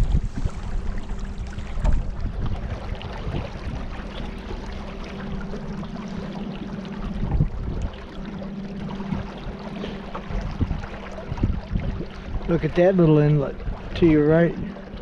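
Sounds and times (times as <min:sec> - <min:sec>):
boat motor humming: 0:00.0 - 0:15.0
wind buffeting microphone: 0:00.0 - 0:15.0.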